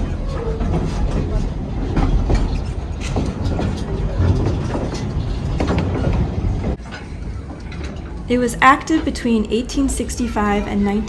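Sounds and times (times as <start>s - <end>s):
train rumbling on track: 0.0s - 11.0s
wheels clacking on rail joints: 0.0s - 11.0s.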